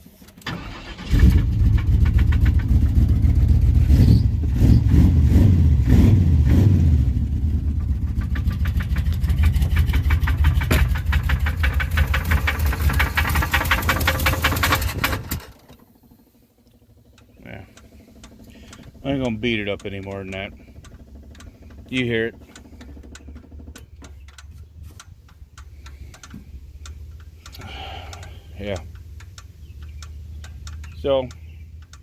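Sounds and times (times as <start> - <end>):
car engine starting and revving: 0.4 - 32.0
engine knocking: 1.2 - 4.2, 7.3 - 24.6.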